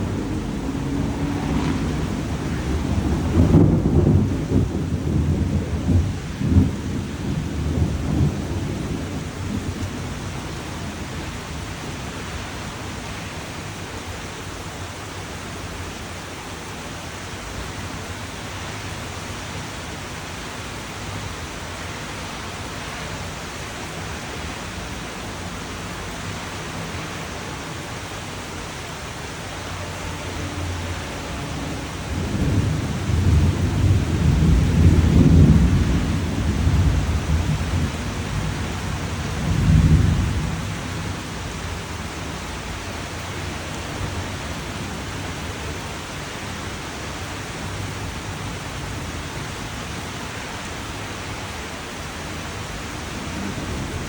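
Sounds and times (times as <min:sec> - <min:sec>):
thunder rumbling: 0:00.0 - 0:13.2, 0:23.9 - 0:50.0, 0:52.4 - 0:54.0
steady rain: 0:00.0 - 0:54.0.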